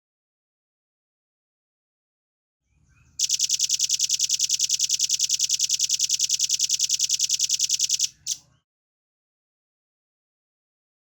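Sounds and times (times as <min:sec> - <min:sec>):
bird fast high-pitched trill: 0:03.2 - 0:08.4.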